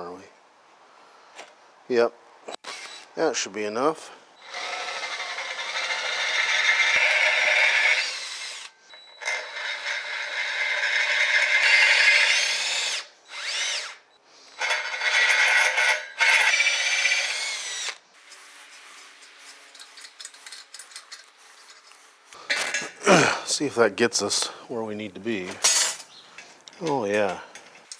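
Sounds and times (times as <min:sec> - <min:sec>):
power drill drilling metal: 0:02.5 - 0:03.1, 0:04.4 - 0:20.9.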